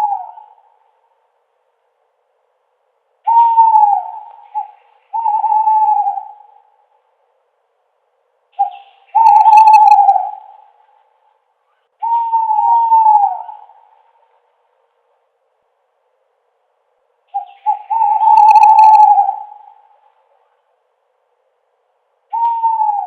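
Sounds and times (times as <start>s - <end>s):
owl hooting: 0.0s - 1.1s, 3.2s - 7.0s, 8.5s - 14.4s, 17.3s - 20.6s, 22.3s - 23.0s.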